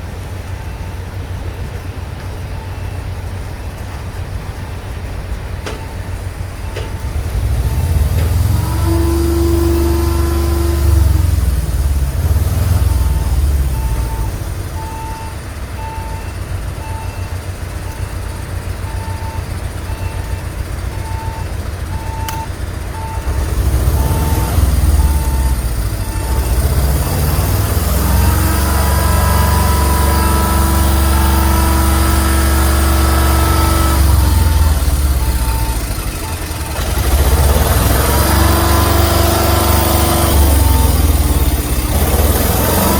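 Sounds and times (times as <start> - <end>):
truck diesel engine rumbling: 0.0 - 42.9
warning beeper: 5.7 - 42.9
steady tone: 23.7 - 42.9.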